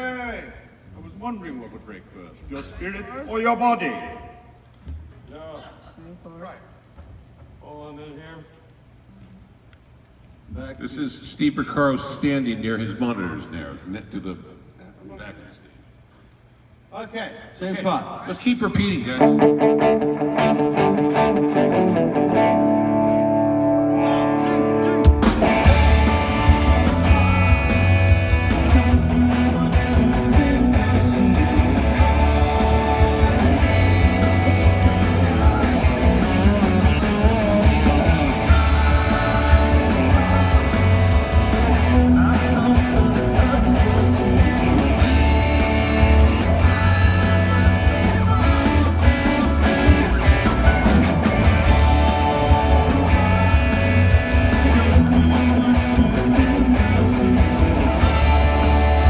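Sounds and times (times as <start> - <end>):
drums: 18.6 - 59.0
bass guitar: 19.2 - 59.0
electric guitar: 19.2 - 59.0
person singing: 23.8 - 59.0.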